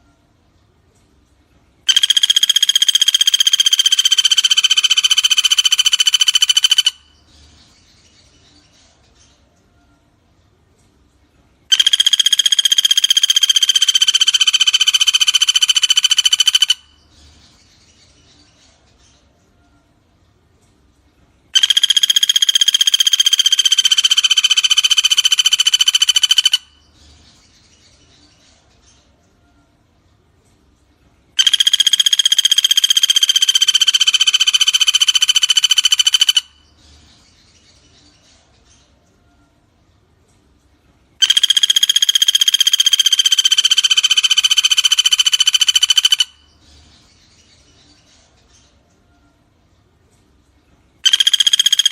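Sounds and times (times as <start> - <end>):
woodpecker rattling trill: 1.9 - 7.2, 11.7 - 17.1, 21.6 - 26.9, 31.4 - 36.8, 41.2 - 46.6, 51.0 - 51.9.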